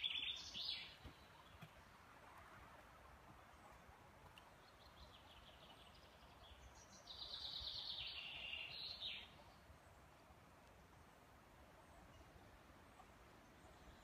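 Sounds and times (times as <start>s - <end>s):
songbird trilling: 0.0s - 1.0s
faint forest background noise: 0.0s - 14.0s.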